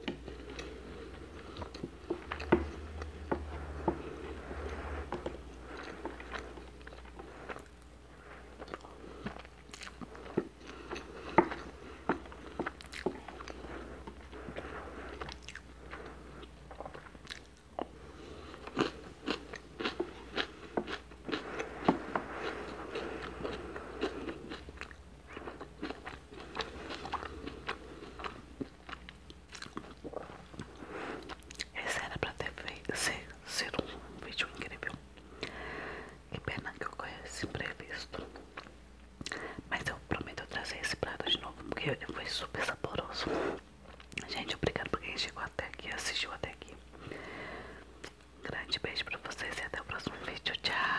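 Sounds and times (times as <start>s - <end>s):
chewing rice: 0.0s - 31.8s.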